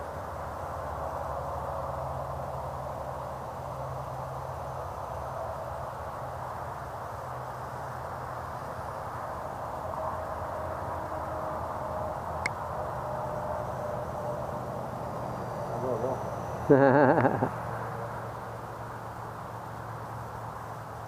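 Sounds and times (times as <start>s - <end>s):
model aircraft buzzing drone: 9.7s - 18.6s.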